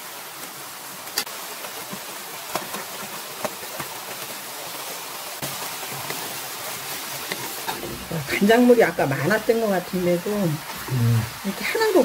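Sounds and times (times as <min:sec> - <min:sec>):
food sizzling in a frying pan: 0:00.0 - 0:12.0
utensils knocking pan: 0:07.3 - 0:09.6.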